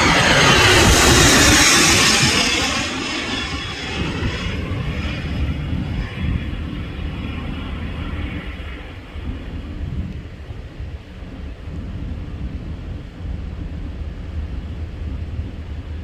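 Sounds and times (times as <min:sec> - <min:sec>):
jet engines passing: 0:00.0 - 0:09.8.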